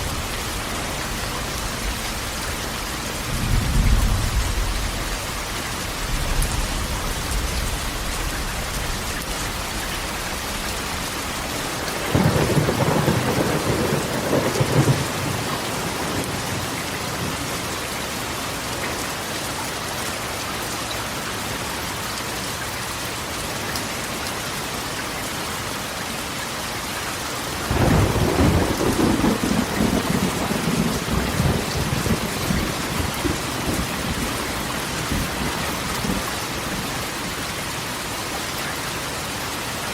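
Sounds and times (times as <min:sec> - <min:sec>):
rain drumming on metal roof: 0:00.0 - 0:39.9
thunder rolling: 0:03.2 - 0:10.7, 0:11.8 - 0:17.5, 0:27.7 - 0:36.8.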